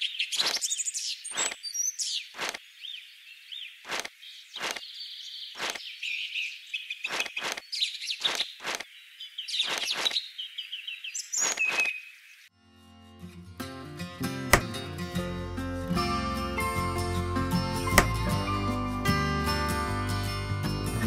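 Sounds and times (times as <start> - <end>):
birds chirping: 0.0 - 12.5
objects tapped on hard board: 18.0 - 18.2.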